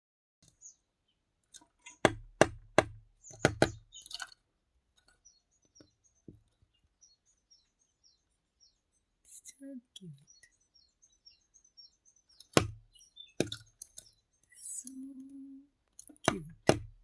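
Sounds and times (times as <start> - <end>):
high bird chirps: 0.4 - 1.2, 3.2 - 4.3, 5.0 - 16.7
birds knocking a coconut shell: 1.5 - 6.7, 12.3 - 14.3, 16.0 - 17.0
shell scraping: 3.3 - 4.4.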